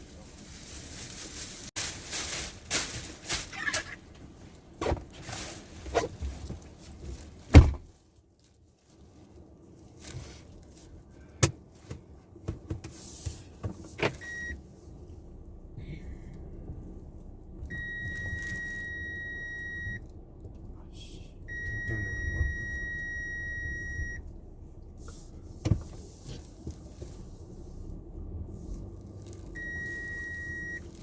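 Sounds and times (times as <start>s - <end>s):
engine and cabin rumble: 0.0s - 31.0s
clicks and knocks in car: 5.9s - 7.9s, 11.4s - 14.3s, 25.6s - 27.1s
high electronic warning tone: 17.7s - 20.0s, 21.5s - 24.2s.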